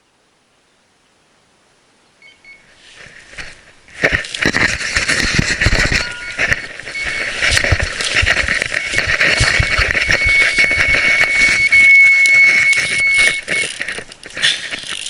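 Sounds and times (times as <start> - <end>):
electronic bite alarm beeping: 5.8 - 13.8.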